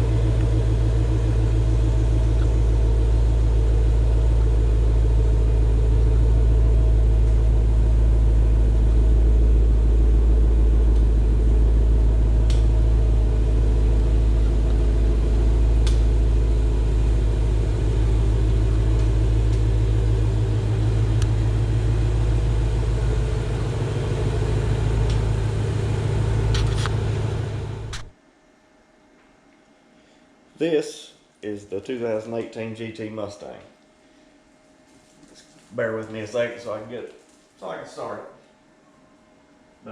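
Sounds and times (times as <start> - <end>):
car engine idling: 0.0 - 28.1.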